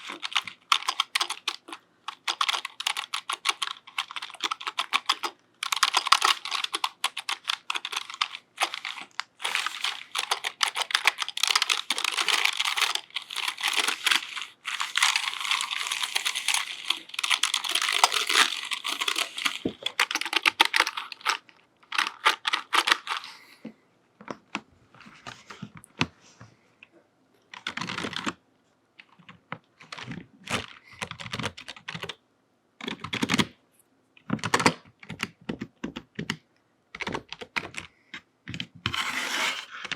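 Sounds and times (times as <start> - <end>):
computer keyboard typing: 0.0 - 23.2, 27.6 - 28.4, 29.0 - 32.2, 32.8 - 33.5, 34.4 - 36.4, 37.0 - 37.9.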